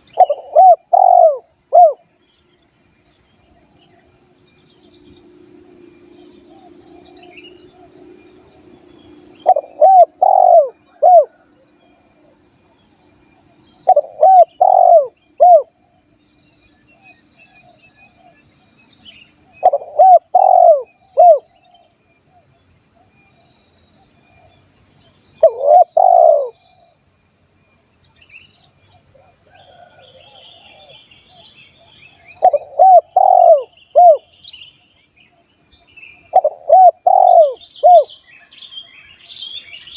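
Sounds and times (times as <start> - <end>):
dove cooing: 0.0 - 2.0, 9.3 - 11.6, 13.8 - 15.8, 19.6 - 21.9, 25.4 - 26.9, 32.4 - 34.3, 36.3 - 38.1
high insect drone: 0.0 - 39.9.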